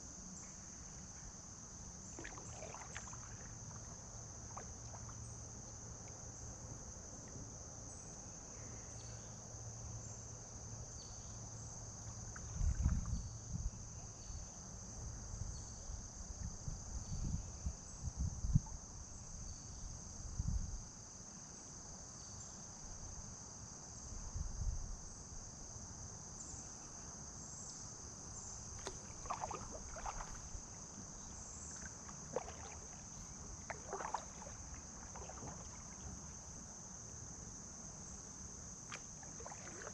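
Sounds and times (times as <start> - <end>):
high-pitched insect chorus: 0.0 - 39.9
light taps or splashes: 2.1 - 6.3, 12.1 - 13.2, 28.7 - 36.6, 38.8 - 39.9.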